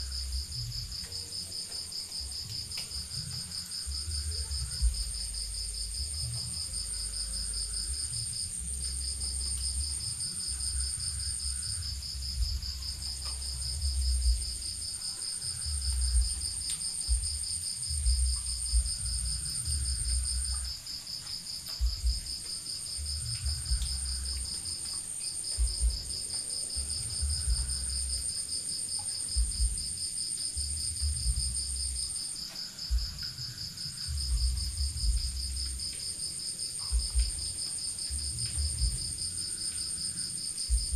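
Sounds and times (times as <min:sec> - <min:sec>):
insects trilling: 0:00.0 - 0:40.9
low rumbles: 0:15.7 - 0:20.8, 0:25.6 - 0:28.2.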